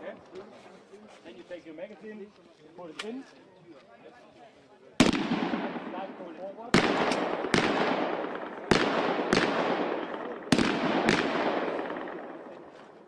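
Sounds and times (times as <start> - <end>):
gunshots with echoing tail: 5.0 - 13.0.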